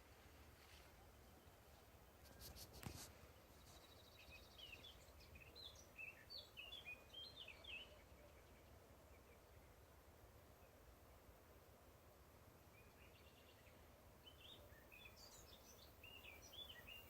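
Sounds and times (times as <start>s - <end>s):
songbird trilling and chirping: 3.6s - 8.6s, 12.8s - 17.0s.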